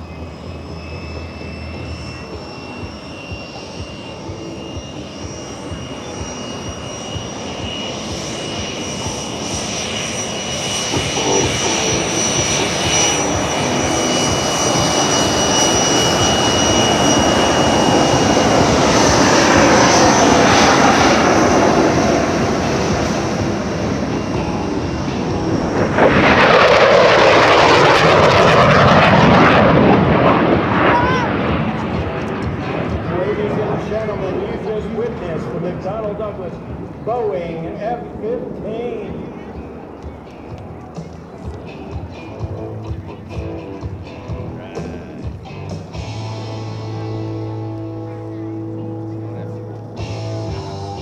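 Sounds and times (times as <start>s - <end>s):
jet engines approaching: 0.0s - 51.0s.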